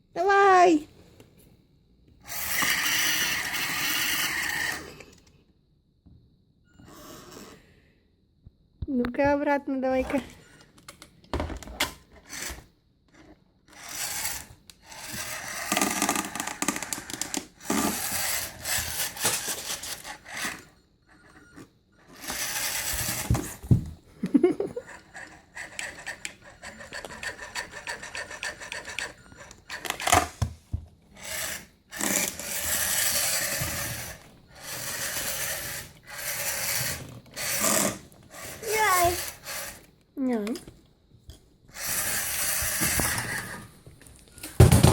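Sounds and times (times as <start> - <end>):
toy electric motor whirring: 2.2 - 5.3, 6.8 - 7.6, 12.2 - 23.8, 24.8 - 30.2, 31.1 - 39.9, 41.7 - 43.7
plastic balls rustling and rattling: 13.8 - 20.6.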